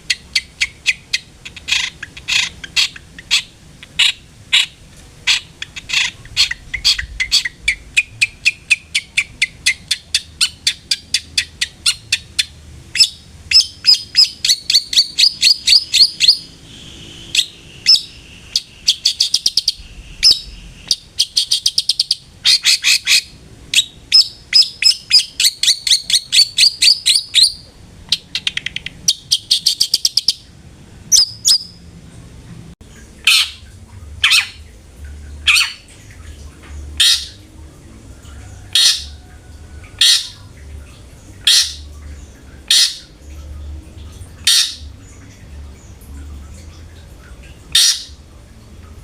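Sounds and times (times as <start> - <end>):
bird chattering trills: 0.1 - 16.5, 17.3 - 30.4.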